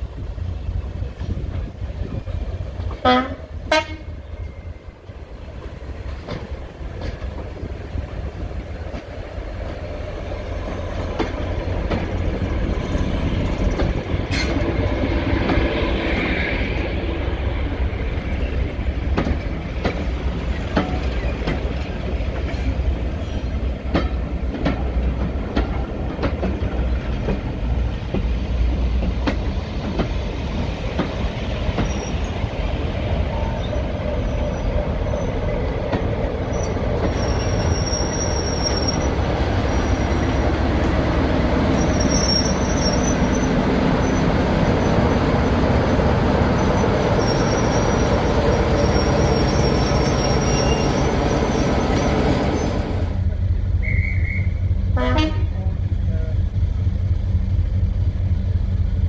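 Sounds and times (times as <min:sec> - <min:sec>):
locomotive engine rumble: 0:00.0 - 0:59.0
train wheels clicking over rail joints: 0:05.2 - 0:15.8, 0:18.3 - 0:33.0, 0:33.6 - 0:53.3.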